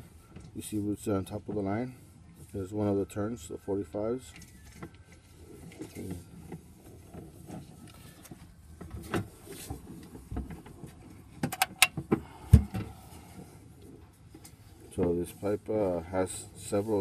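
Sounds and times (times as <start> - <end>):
handling knocks and clicks: 5.7 - 12.9.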